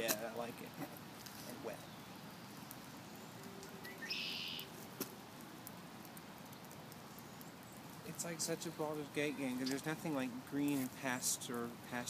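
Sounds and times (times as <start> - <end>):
faint outdoor background: 0.0 - 12.0
high-pitched bird call: 3.8 - 4.7.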